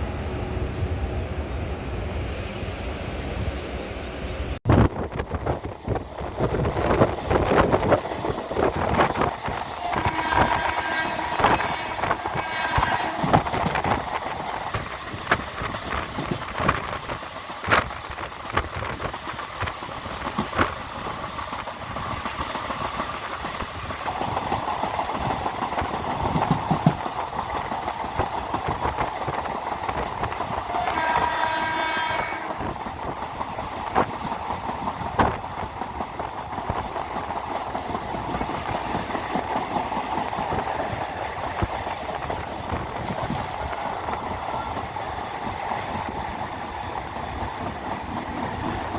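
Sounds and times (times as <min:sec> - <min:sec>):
train rumbling on rails: 0:00.0 - 0:48.9
train horn: 0:09.7 - 0:13.6, 0:30.7 - 0:32.7.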